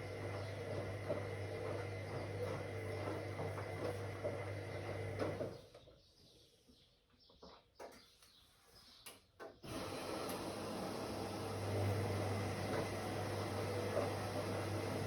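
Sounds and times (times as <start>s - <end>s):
washing machine motor humming: 0.0s - 5.6s, 9.6s - 15.0s.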